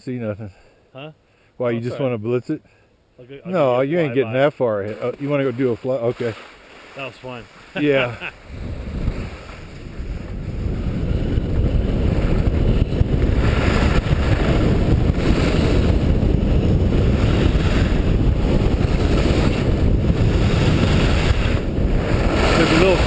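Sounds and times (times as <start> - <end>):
wind buffeting microphone: 8.3 - 23.0
skis rushing over snow: 8.8 - 23.0.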